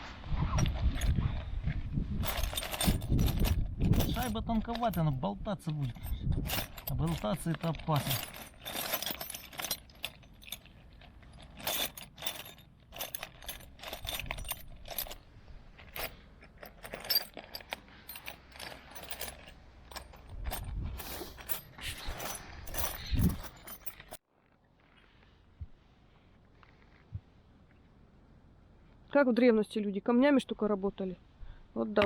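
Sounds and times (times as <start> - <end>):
metal tools clinking on steel: 2.2 - 24.2.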